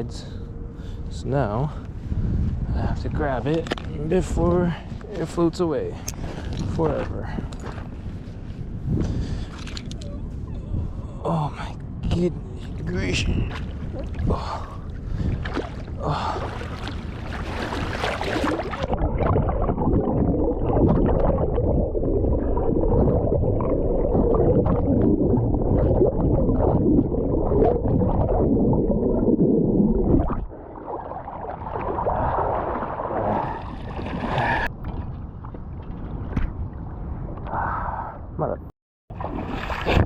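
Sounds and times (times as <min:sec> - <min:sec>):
rumbling gurgling water: 0:08.8 - 0:37.7, 0:39.1 - 0:40.0.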